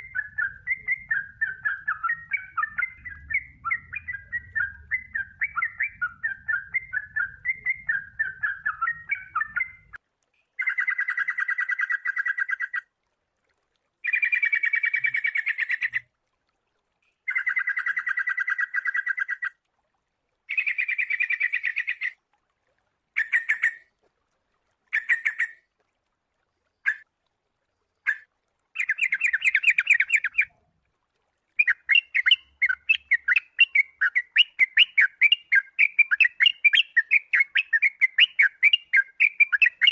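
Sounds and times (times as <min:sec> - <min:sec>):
bird chattering and trilling: 0:20.5 - 0:22.2.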